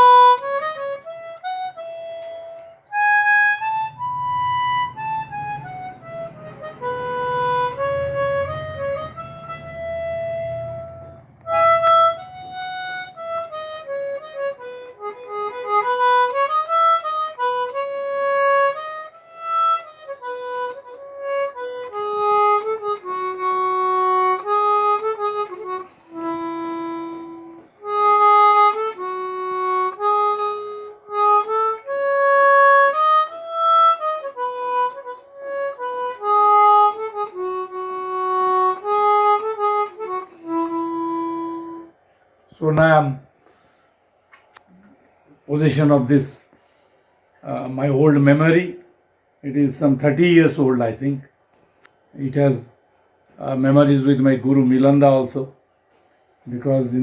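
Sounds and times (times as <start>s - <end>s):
harmonica melody: 0.0s - 42.6s.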